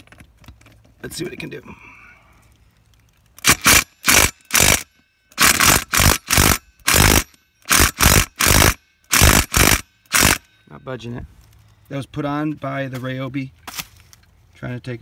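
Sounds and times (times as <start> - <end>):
impact driver hammering: 3.4 - 10.4.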